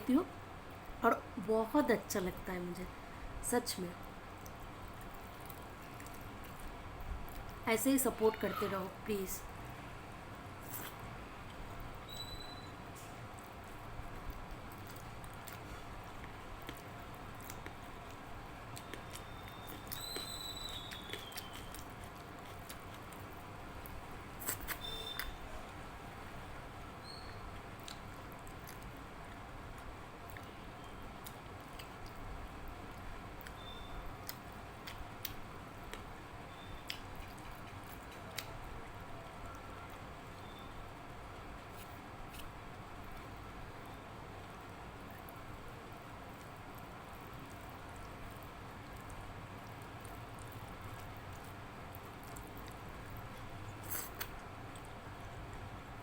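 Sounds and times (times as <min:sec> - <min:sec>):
low steady hum: 0:00.0 - 0:56.0
wet chewing and squishing: 0:04.0 - 0:07.6, 0:10.6 - 0:25.5, 0:27.0 - 0:40.6, 0:41.3 - 0:43.4, 0:44.4 - 0:56.0
eating by hand wet clicks: 0:16.2 - 0:25.4, 0:36.8 - 0:38.6.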